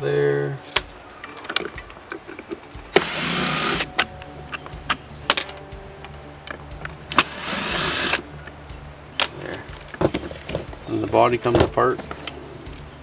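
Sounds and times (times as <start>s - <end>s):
metal lock parts clicking: 0.6s - 13.0s
cordless drill running: 2.9s - 4.2s, 7.0s - 8.3s.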